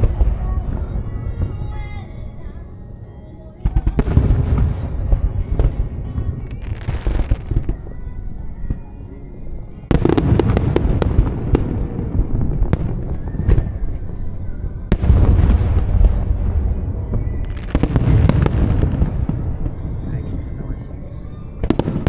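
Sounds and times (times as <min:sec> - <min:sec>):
fireworks booming: 0:00.0 - 0:02.0, 0:03.6 - 0:08.8, 0:09.8 - 0:22.0
fireworks crackling pops: 0:03.6 - 0:08.9.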